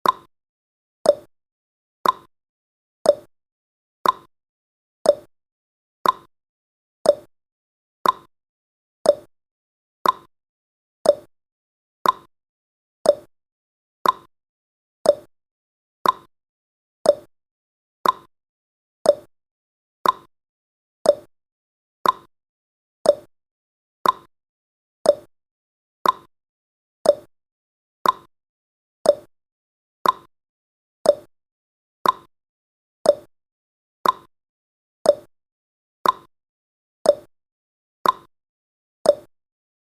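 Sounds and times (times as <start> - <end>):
clock ticking: 2.0 - 2.3, 4.0 - 4.3, 6.0 - 6.3, 8.0 - 8.3, 10.0 - 10.3, 12.0 - 12.3, 14.0 - 14.3, 15.1 - 15.3, 16.0 - 16.3, 18.0 - 18.3, 20.0 - 20.3, 22.0 - 22.3, 24.0 - 24.3, 25.1 - 25.3, 26.0 - 26.3, 27.1 - 27.3, 28.0 - 28.3, 29.1 - 29.3, 30.0 - 30.3, 32.0 - 32.3, 33.1 - 33.3, 34.0 - 34.3, 36.0 - 36.3, 38.0 - 38.3, 39.1 - 39.3.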